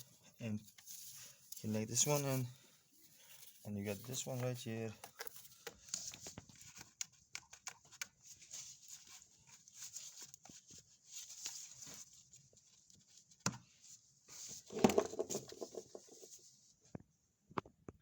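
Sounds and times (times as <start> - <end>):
scraping rustle: 0.6 - 5.6.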